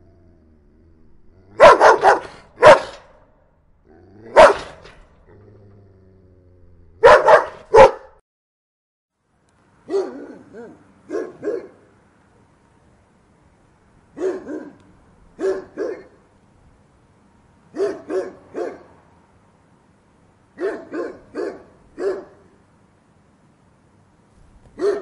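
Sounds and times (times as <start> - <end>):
dog barking: 1.6 - 3.1, 4.3 - 4.9, 7.0 - 8.2, 9.9 - 11.9, 14.2 - 14.8, 15.4 - 16.2, 17.8 - 18.9, 20.6 - 22.5, 24.8 - 25.0.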